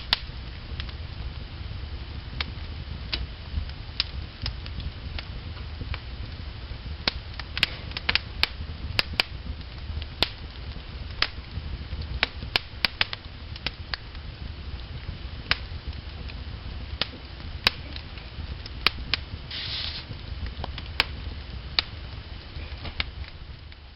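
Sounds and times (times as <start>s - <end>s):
fire crackling and popping: 0.0s - 23.9s
low fire rumble: 0.0s - 23.9s
short hiss: 19.5s - 20.1s.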